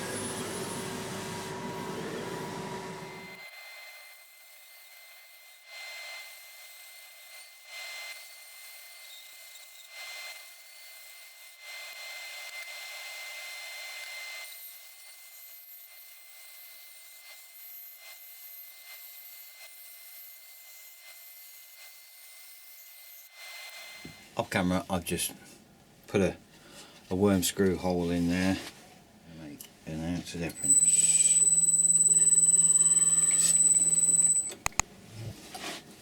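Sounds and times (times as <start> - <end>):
steady high whine: 0.0 - 3.4, 30.5 - 34.8
power tool cutting wood board: 0.0 - 11.3, 30.6 - 34.8.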